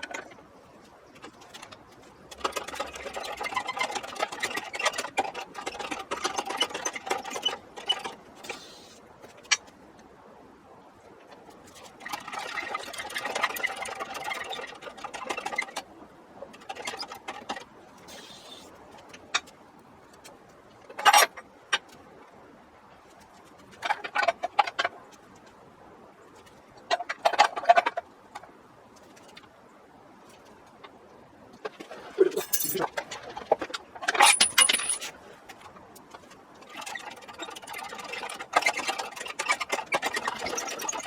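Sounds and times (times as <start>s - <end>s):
hand tools clicking metallically: 32.4s - 32.9s, 34.2s - 35.1s.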